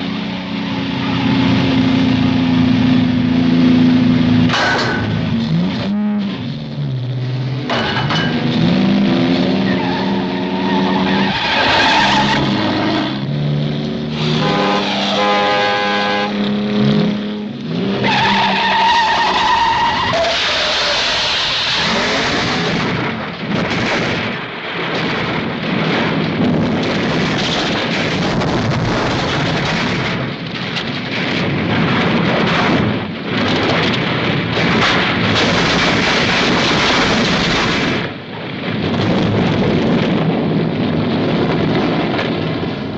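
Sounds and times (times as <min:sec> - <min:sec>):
car engines revving hard: 0:00.0 - 0:42.9
tyres squealing: 0:18.0 - 0:22.3.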